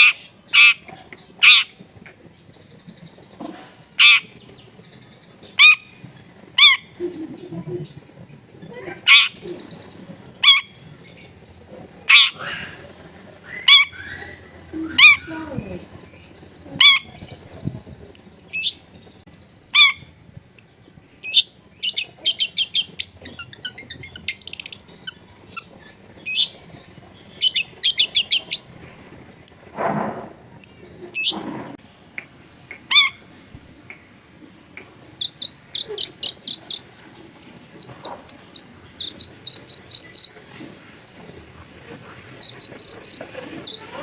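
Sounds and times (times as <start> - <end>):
bird squawking calls: 0.0 - 2.2, 4.0 - 4.5, 5.5 - 6.0, 6.6 - 7.3, 8.7 - 11.0, 12.0 - 18.9, 19.7 - 29.7, 32.7 - 33.3, 34.8 - 44.0
harsh rasping bird notes: 0.0 - 2.4, 8.7 - 19.0, 34.7 - 44.0
shrike singing: 12.0 - 29.7, 34.8 - 44.0.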